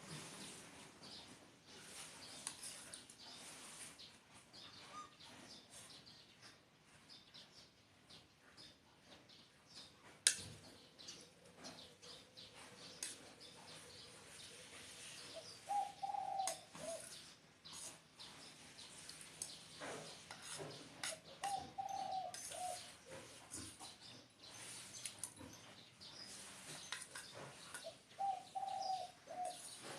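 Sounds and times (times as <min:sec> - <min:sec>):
small birds chirping: 0:00.0 - 0:29.9
dove cooing: 0:15.3 - 0:17.2, 0:21.1 - 0:23.0, 0:27.8 - 0:29.9.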